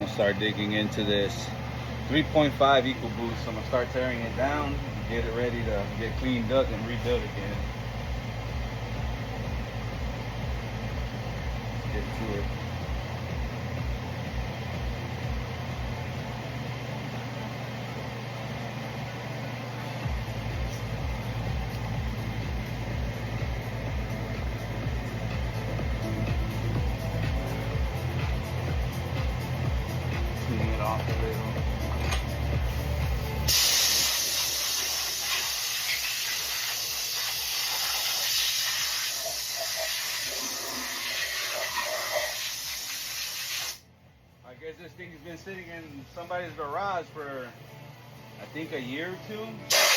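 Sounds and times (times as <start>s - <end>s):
low mechanical hum: 0.0s - 42.4s, 43.8s - 49.9s
low throbbing: 4.3s - 16.5s, 20.0s - 33.5s
hissing spray: 33.5s - 43.8s, 49.7s - 49.9s.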